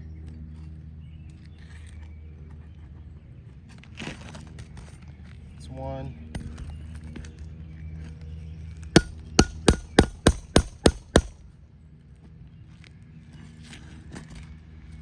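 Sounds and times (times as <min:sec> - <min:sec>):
hammer striking steel nail puller: 0:09.0 - 0:11.4.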